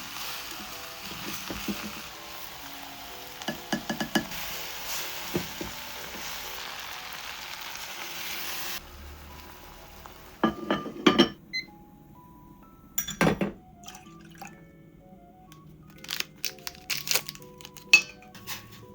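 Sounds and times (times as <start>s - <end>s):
food sizzling in a pan: 0.0s - 11.2s.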